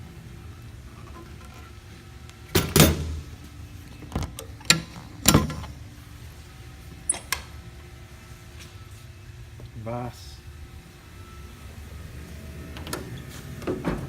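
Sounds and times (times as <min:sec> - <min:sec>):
metal latches clanking: 0:02.5 - 0:03.3, 0:04.1 - 0:05.8
metal door banging: 0:02.6 - 0:03.3.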